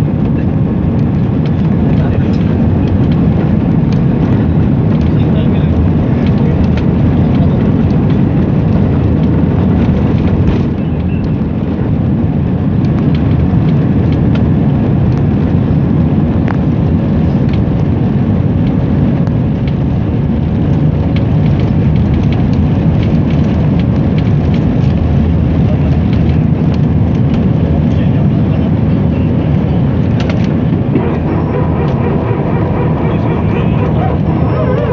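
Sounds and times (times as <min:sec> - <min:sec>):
airliner engine rumble: 0:00.0 - 0:34.9.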